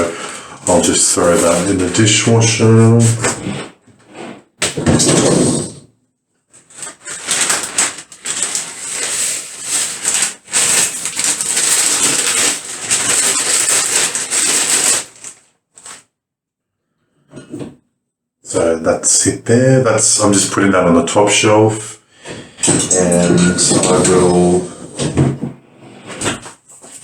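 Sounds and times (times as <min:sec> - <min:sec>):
dishes clattering in dishwasher rack: 0:22.6 - 0:25.4.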